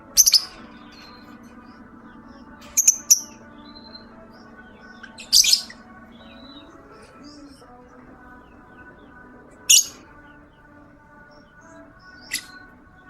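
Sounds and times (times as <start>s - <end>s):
bird shrill calls: 0.0s - 1.7s, 2.4s - 6.8s, 9.6s - 10.1s, 11.6s - 12.8s.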